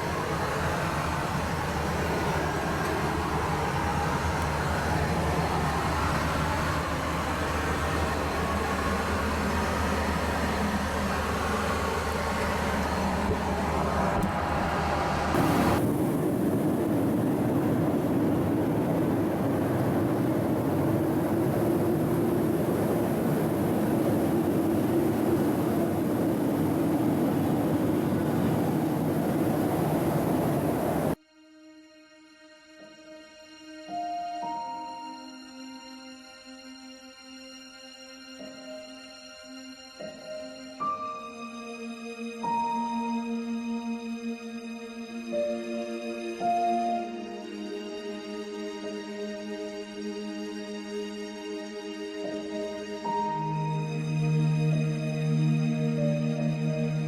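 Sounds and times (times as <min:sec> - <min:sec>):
airliner cabin engine and airflow: 0:00.0 - 0:31.2, 0:40.0 - 0:57.0
soft music: 0:31.2 - 0:57.0.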